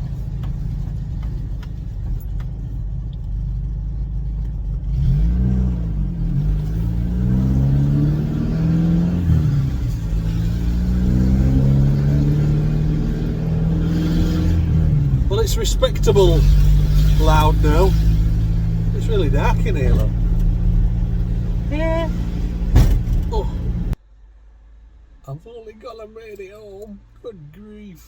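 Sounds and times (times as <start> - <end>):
pickup engine rumbling and revving: 0.0 - 24.0
loud exhaust: 4.9 - 25.1.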